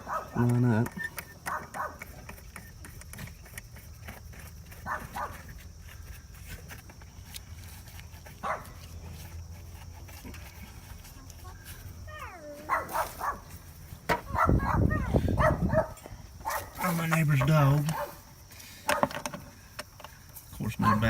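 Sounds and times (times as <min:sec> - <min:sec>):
dog barking: 0:00.0 - 0:00.5, 0:01.5 - 0:02.0, 0:04.8 - 0:05.4, 0:08.4 - 0:08.8, 0:12.6 - 0:13.5, 0:14.3 - 0:16.9, 0:17.9 - 0:18.2, 0:20.8 - 0:21.0.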